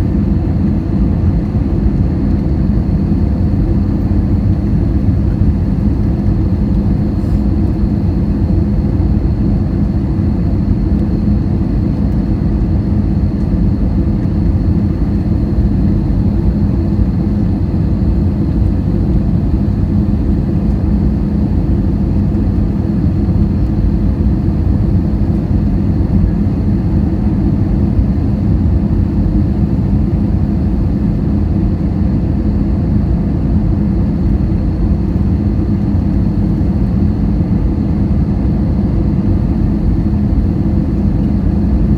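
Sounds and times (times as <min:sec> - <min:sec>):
jet airliner rumble: 0:00.0 - 0:41.9.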